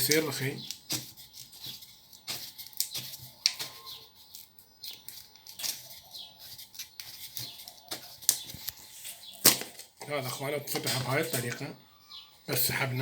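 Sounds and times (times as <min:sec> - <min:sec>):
plastic cover clicking and rubbing: 0:07.0 - 0:11.7.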